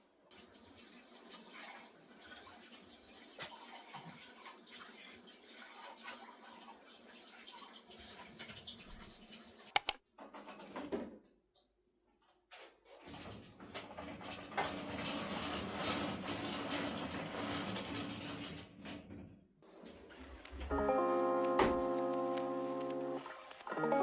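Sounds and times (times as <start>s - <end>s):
water running from a tap: 0.3s - 9.8s
sharp double click: 9.8s - 10.0s.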